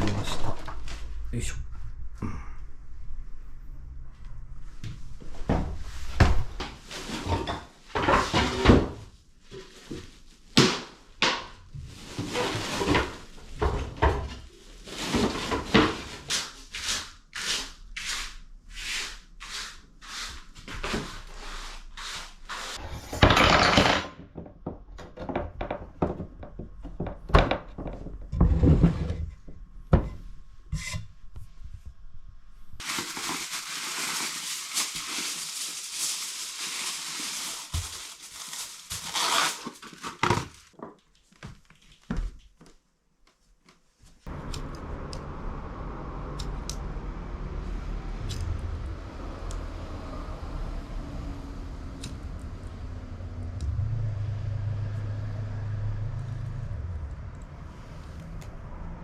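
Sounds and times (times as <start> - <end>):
wooden knocks and thuds: 23.1 - 30.2.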